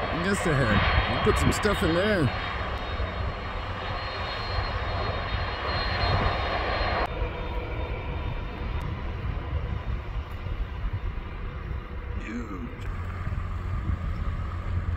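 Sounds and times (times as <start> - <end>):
jet engine rush: 0.0 - 14.9
low engine rumble: 8.7 - 14.9.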